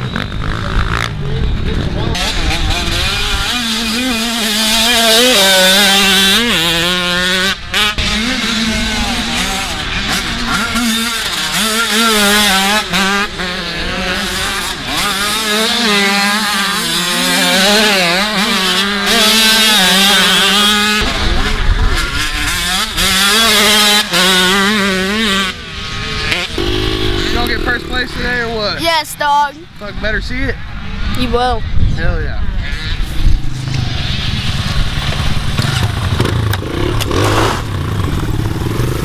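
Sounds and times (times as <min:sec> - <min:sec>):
dirt bike engines revving: 0:00.0 - 0:39.0
steady engine note: 0:26.5 - 0:28.6.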